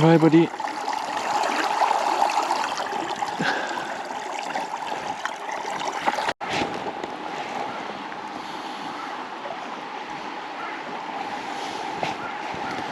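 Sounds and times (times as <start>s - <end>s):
river water rippling: 0.0s - 12.9s.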